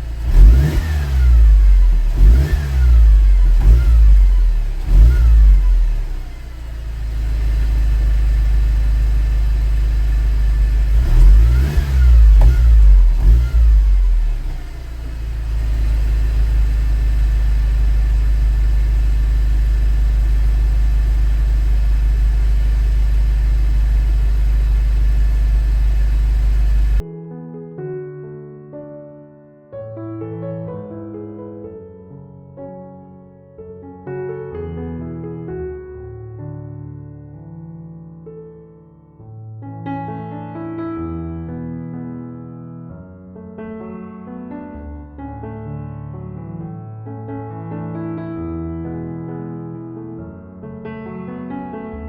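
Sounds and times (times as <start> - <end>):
car engine revving and idling: 0.0 - 27.0.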